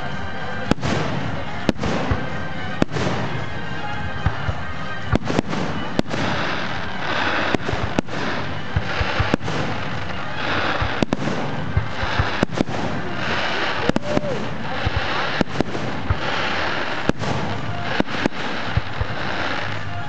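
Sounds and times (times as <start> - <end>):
fireworks crackling: 0.0 - 20.0
firework shells bursting: 0.7 - 20.0.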